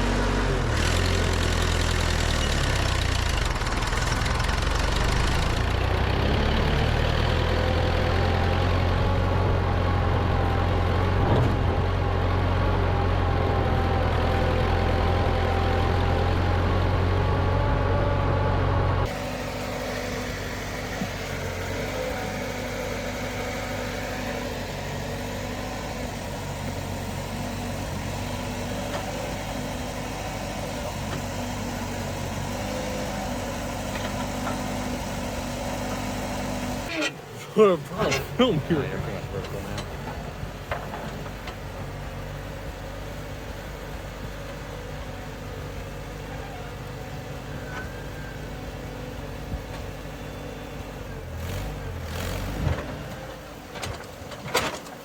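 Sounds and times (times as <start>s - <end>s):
tractor engine running: 0.0s - 11.1s, 19.1s - 46.1s.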